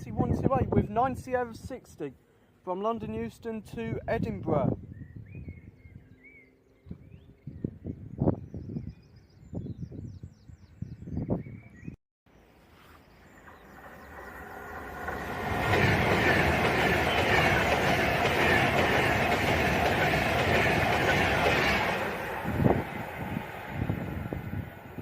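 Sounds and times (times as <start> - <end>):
electric train passing at speed: 13.1 - 25.0
wheels clattering on rails: 13.3 - 24.8.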